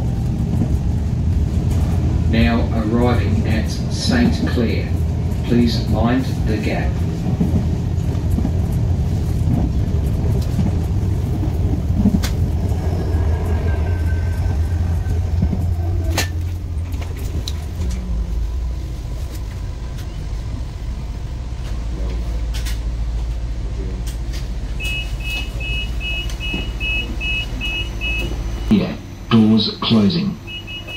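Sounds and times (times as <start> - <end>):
train rumbling: 0.0 - 30.9
two-tone door warning beeps: 24.8 - 28.7, 30.4 - 30.9.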